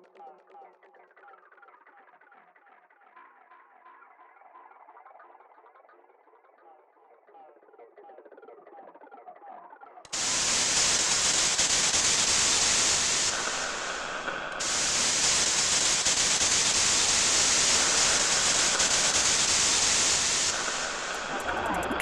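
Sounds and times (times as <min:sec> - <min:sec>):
loud static hiss: 0:10.1 - 0:22.0.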